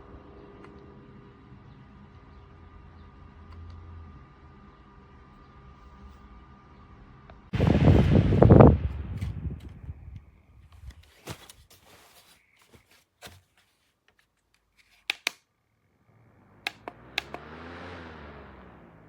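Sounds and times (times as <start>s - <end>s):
portable fan motor humming: 0.0s - 11.4s, 16.1s - 19.0s
sharp clicks: 15.0s - 15.4s, 16.7s - 17.5s.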